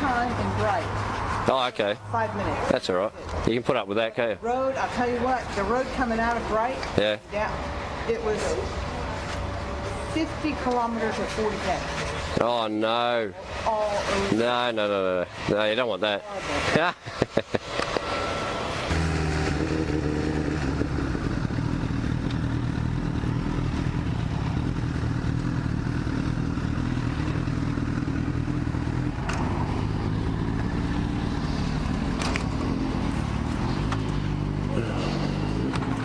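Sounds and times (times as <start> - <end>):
motorcycle engine running: 18.9 - 36.0.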